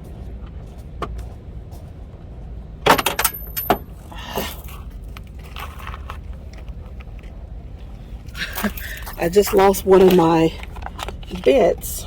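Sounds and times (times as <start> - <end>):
metal bits clinking: 2.9 - 4.0.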